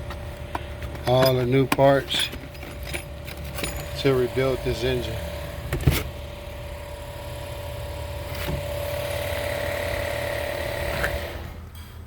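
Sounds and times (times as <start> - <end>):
motor running with whine: 3.0 - 11.9.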